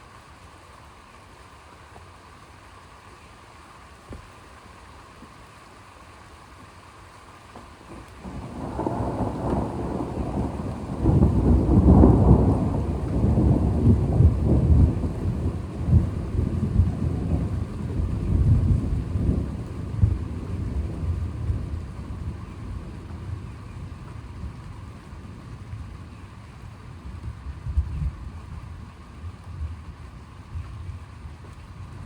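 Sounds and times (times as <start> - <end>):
thunder rumbling: 7.9 - 29.9.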